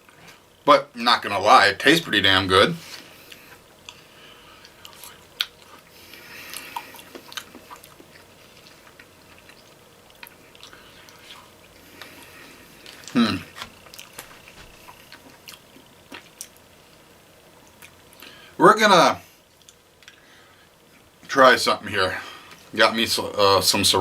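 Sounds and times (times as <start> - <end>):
person chewing food: 2.9 - 16.6, 19.5 - 20.2.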